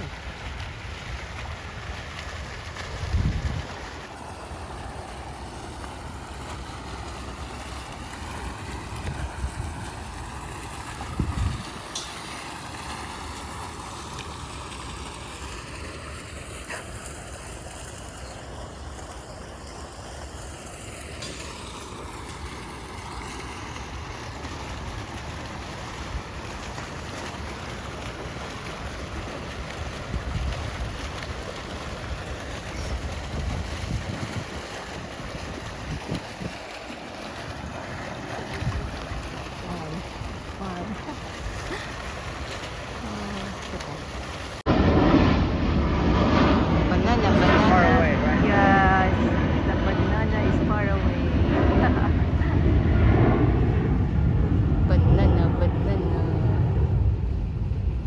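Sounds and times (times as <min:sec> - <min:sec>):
jet airliner passing over: 0:01.4 - 0:58.0
wind buffeting microphone: 0:01.5 - 0:04.2, 0:07.1 - 0:13.3, 0:29.5 - 0:43.9, 0:44.6 - 0:58.0.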